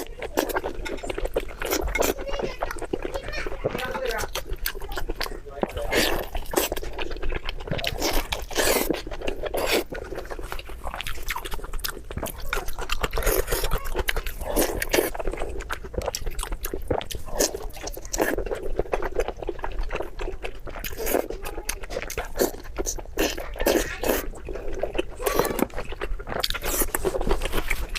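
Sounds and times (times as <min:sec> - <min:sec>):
person chewing crunchy food: 0:00.0 - 0:27.9.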